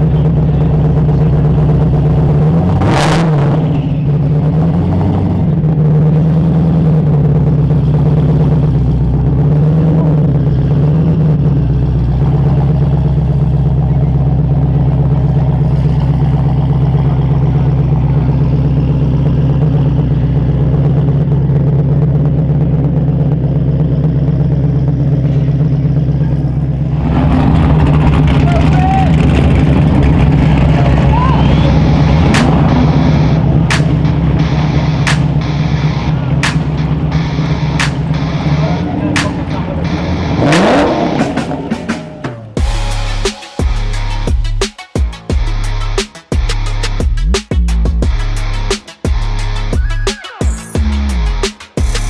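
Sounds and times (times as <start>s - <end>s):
car engine idling and revving: 0.0s - 52.0s
sharp crack: 27.0s - 42.7s.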